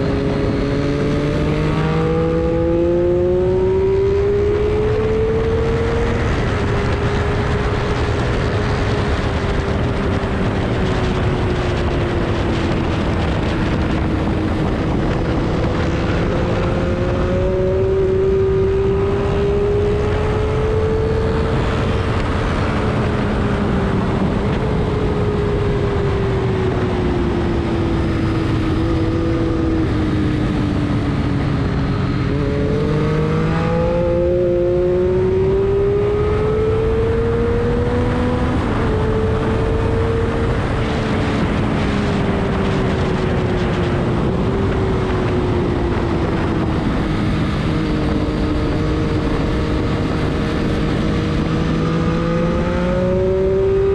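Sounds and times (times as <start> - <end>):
car engine running hard: 0.0 - 53.9
road and wind noise: 0.0 - 53.9.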